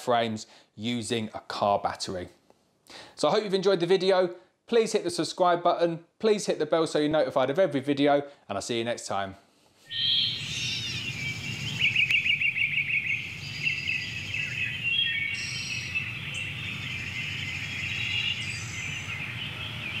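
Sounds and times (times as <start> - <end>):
birds singing and chirping: 9.9 - 20.0.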